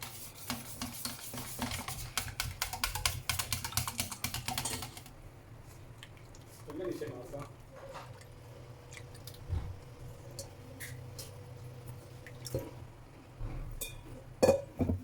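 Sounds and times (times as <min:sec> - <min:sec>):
batter squishing and dripping: 0:01.4 - 0:11.0.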